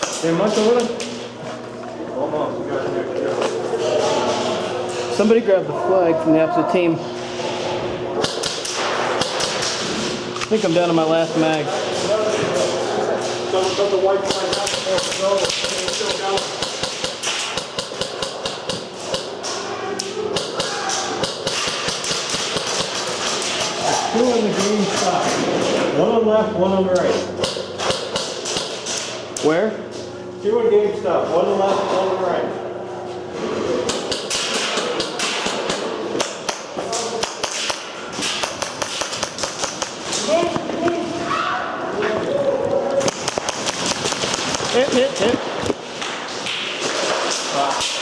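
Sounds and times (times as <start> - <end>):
airsoft guns firing: 8.2 - 9.9, 20.4 - 23.7, 34.0 - 40.4, 43.0 - 45.2.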